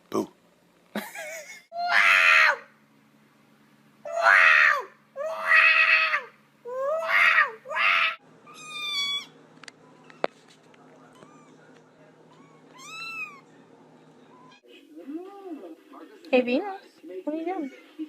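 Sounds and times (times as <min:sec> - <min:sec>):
cat yowling: 0:01.8 - 0:02.7, 0:04.1 - 0:09.3, 0:12.3 - 0:13.5.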